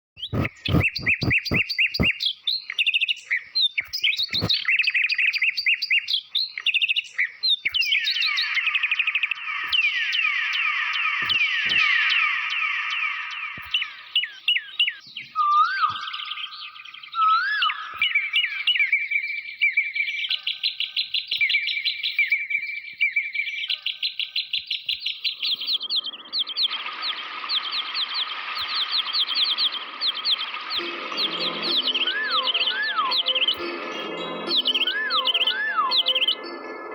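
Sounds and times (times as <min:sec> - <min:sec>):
electronic birdsong chirps: 0:00.2 - 0:03.1, 0:03.8 - 0:06.9, 0:07.7 - 0:19.1, 0:25.3 - 0:36.9
falling whistle-like sweeps: 0:25.7 - 0:36.9
steady hiss: 0:26.1 - 0:32.3.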